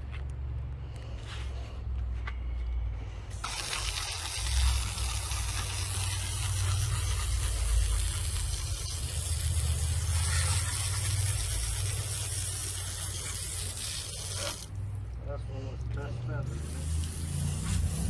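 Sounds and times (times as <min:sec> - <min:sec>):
spraying hiss: 0:03.3 - 0:14.8, 0:16.5 - 0:18.0
low engine hum: 0:14.6 - 0:18.0.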